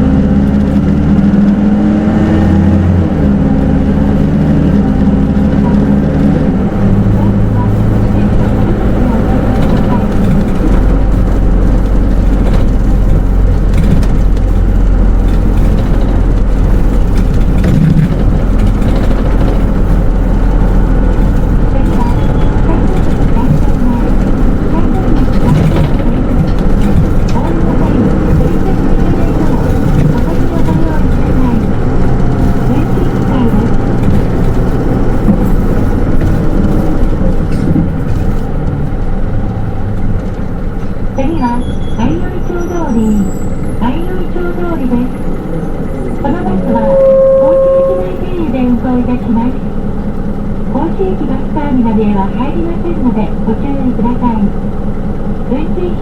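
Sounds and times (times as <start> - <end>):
bus diesel engine drone: 0.0 - 56.0
road noise: 0.0 - 56.0.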